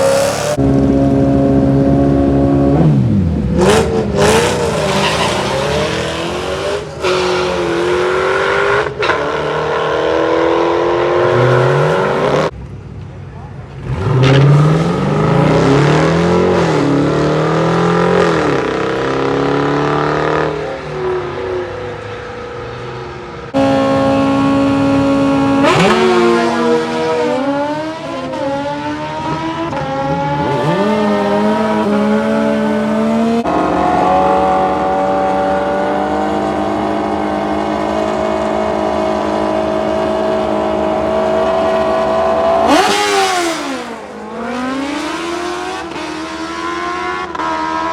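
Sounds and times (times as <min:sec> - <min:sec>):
engine accelerating hard: 0:00.0 - 0:12.5, 0:23.5 - 0:47.9.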